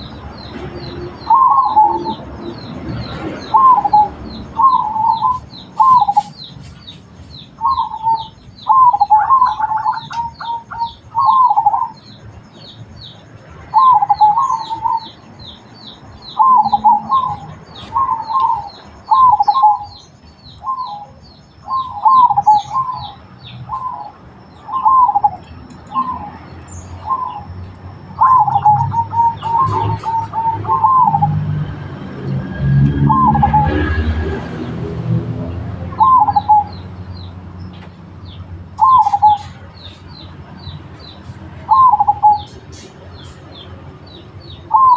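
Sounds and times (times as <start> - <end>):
small birds chirping: 0.0 - 44.9
doves cooing: 0.7 - 2.2, 3.2 - 6.4, 7.6 - 12.0, 13.7 - 15.2, 16.3 - 20.0, 20.6 - 26.4, 28.2 - 31.6, 36.0 - 36.8, 38.8 - 39.6, 41.6 - 42.6.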